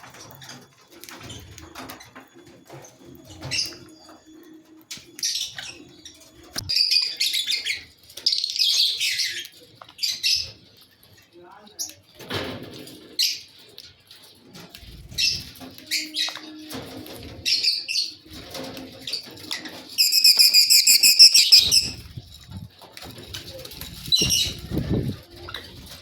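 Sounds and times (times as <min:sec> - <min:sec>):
wings fluttering: 0:18.2 - 0:26.0
rapid chattering trill: 0:20.0 - 0:22.0
birds chirping: 0:20.0 - 0:22.1.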